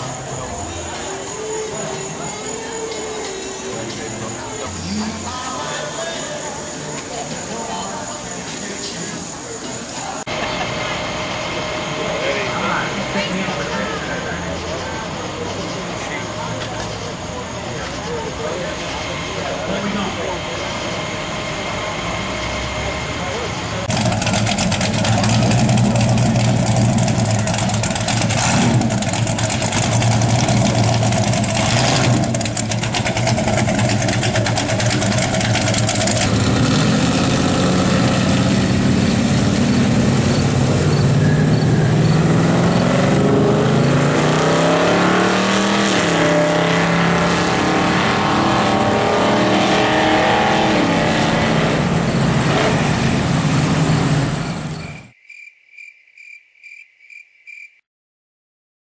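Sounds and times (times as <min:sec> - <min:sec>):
car engine accelerating: 0:10.1 - 0:55.2.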